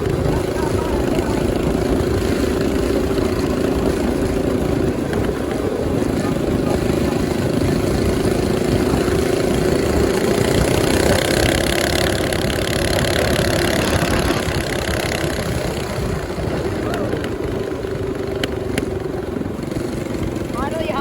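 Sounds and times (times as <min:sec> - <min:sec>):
small engine running: 0:00.0 - 0:21.0.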